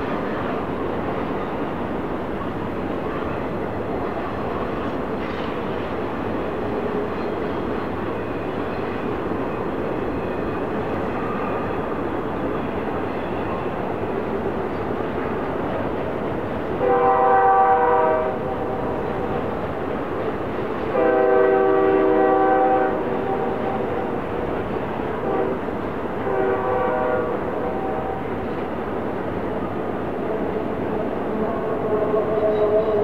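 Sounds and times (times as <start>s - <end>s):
passing train rumble: 0.0s - 33.0s
locomotive air horn blasts: 16.8s - 18.6s, 20.9s - 24.1s, 25.2s - 25.6s, 26.2s - 28.3s.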